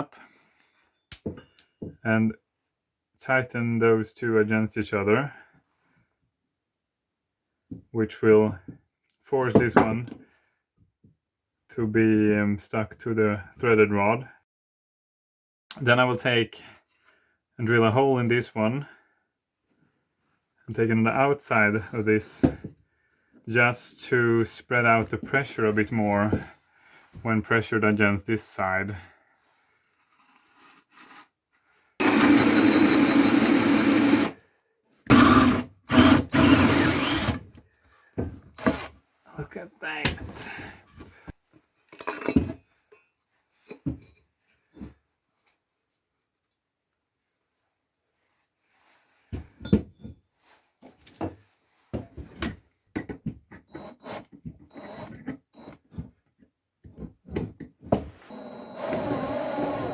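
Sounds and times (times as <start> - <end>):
workpieces knocking and clattering: 1.1 - 2.0, 9.4 - 10.2, 25.0 - 25.7, 41.9 - 44.9, 49.3 - 50.2, 51.0 - 53.7
electric drill drilling wood: 32.0 - 34.4, 35.1 - 37.4, 38.6 - 38.9, 53.7 - 55.8, 58.2 - 59.9.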